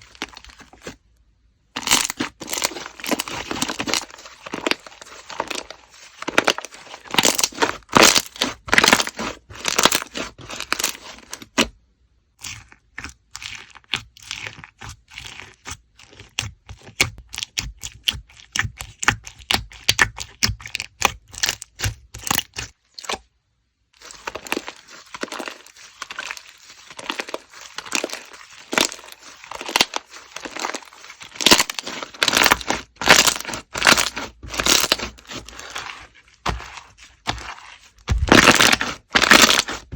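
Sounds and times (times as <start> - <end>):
slime squished by hand: 1.8 - 11.7, 24.0 - 39.9.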